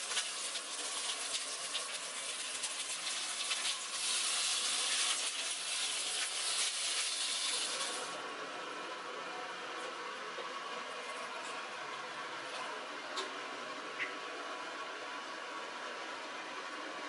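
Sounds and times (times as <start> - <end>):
fish roe sizzling in a pan: 0.0 - 8.2
water pouring into a pot: 0.0 - 8.2.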